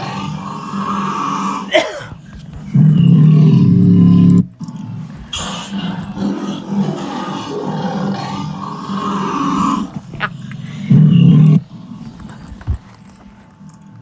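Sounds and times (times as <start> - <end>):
tiger roaring: 5.3 - 11.6.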